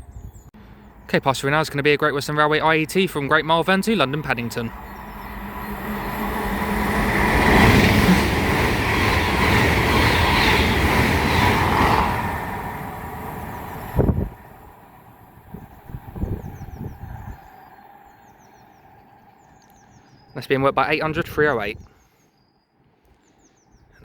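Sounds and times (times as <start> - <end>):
train passing at speed: 2.0 - 20.1.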